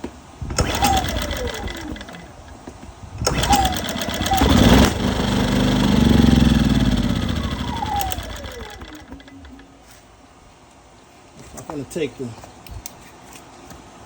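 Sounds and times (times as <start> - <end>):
generator engine starting and dying: 0.5 - 2.6, 3.2 - 9.8.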